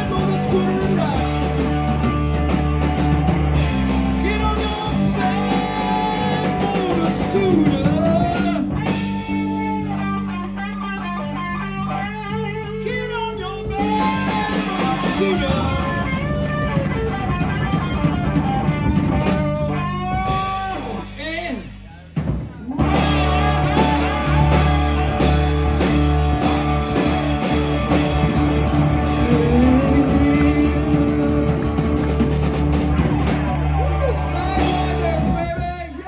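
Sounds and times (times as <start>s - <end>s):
rock band playing: 0.0s - 36.0s
electric guitar bending notes: 22.8s - 35.6s.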